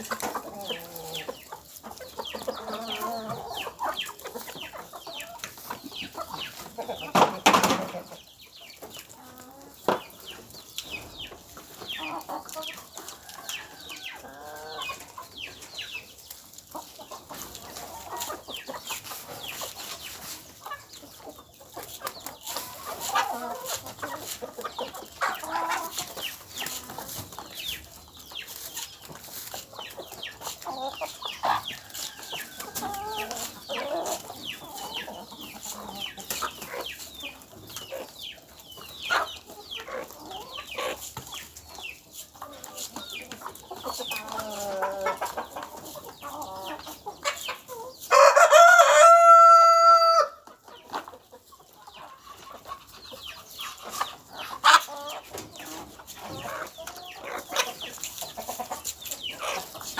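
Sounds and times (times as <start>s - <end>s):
chickens clucking: 0.0s - 59.9s
rooster crowing: 48.1s - 50.4s.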